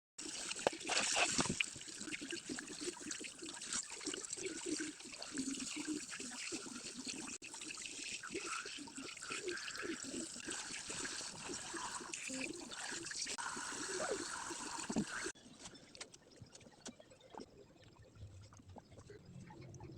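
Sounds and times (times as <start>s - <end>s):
water trickling and splashing: 0.2s - 15.4s.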